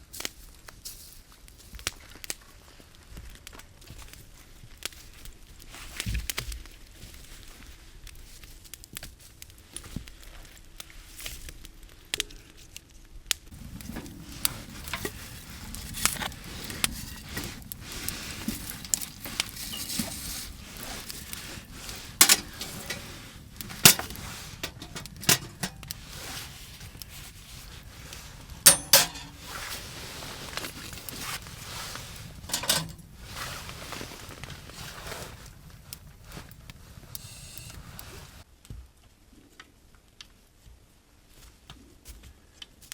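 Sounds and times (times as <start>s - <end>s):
low rustle: 13.5s - 38.5s
metal camp gear clinking: 13.6s - 26.9s, 28.5s - 34.1s.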